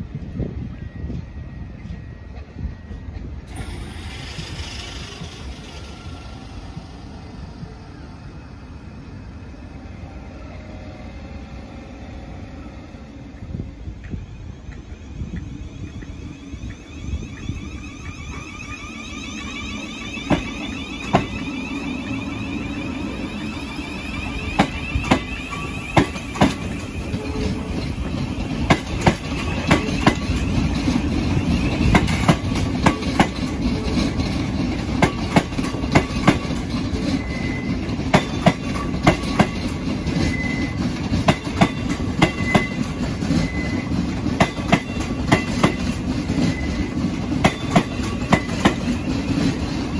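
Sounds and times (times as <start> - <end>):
train wheels clicking over rail joints: 1.8 - 7.7, 14.0 - 49.9
faint wheel squeal: 14.9 - 28.7, 37.0 - 37.8, 40.2 - 40.8, 43.4 - 44.0.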